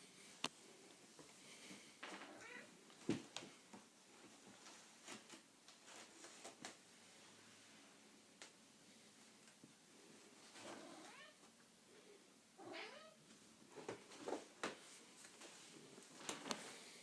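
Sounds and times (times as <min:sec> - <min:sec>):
cat meowing: 0:02.3 - 0:02.7, 0:10.8 - 0:11.4, 0:12.6 - 0:13.2.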